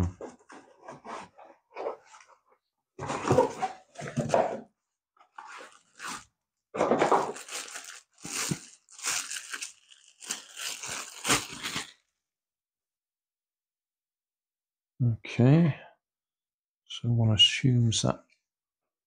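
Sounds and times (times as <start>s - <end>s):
packaging crinkling and tearing: 5.4s - 12.0s.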